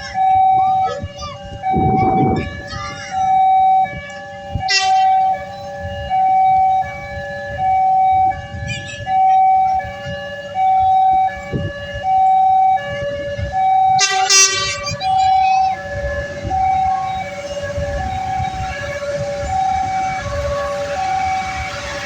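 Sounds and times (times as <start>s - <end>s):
level crossing two-tone alarm: 0.0s - 22.0s
loud high-pitched blast: 14.0s - 22.0s.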